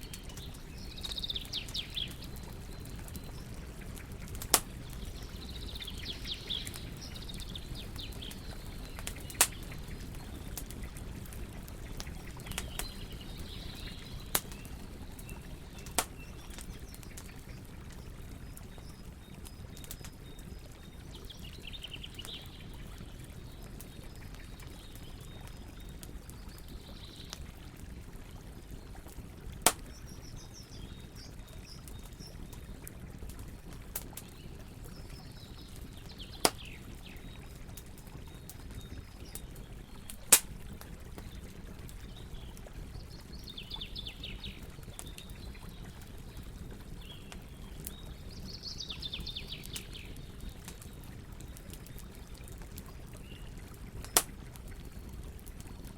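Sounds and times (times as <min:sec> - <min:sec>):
birds chirping: 0:00.0 - 0:27.4
campfire burning: 0:00.0 - 0:55.9
fire crackling pops: 0:00.0 - 0:55.9.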